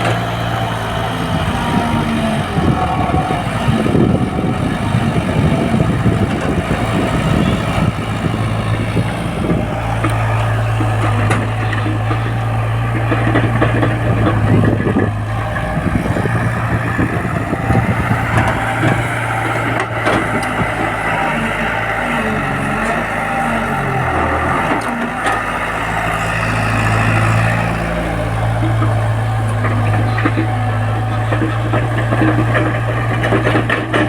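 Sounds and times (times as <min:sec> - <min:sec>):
tractor diesel engine running: 0:00.0 - 0:34.0
rattling and knocks: 0:03.2 - 0:21.6, 0:26.9 - 0:34.0.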